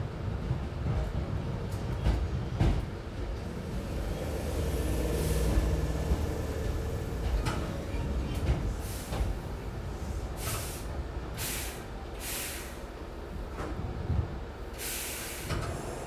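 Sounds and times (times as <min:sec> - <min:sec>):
train running rumble: 0:00.0 - 0:16.0
short hisses of released air: 0:10.4 - 0:12.8, 0:14.8 - 0:16.0.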